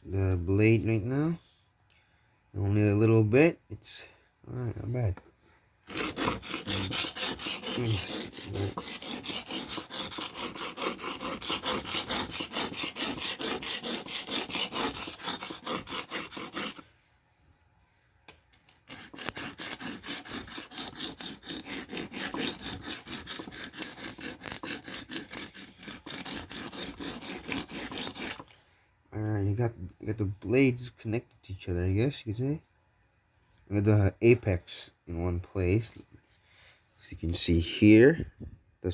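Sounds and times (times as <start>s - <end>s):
knife scraping on whetstone: 5.8s - 16.8s, 18.6s - 28.5s.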